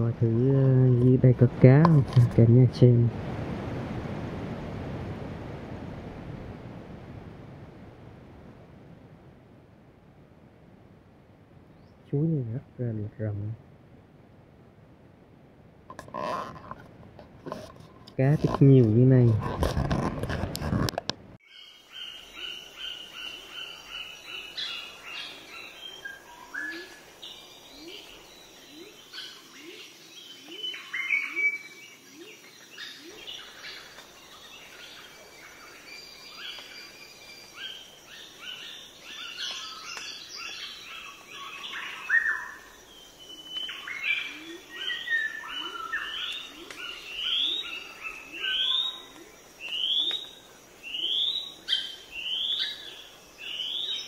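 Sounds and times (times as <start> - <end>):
birds chirping and calling: 21.5 - 54.0.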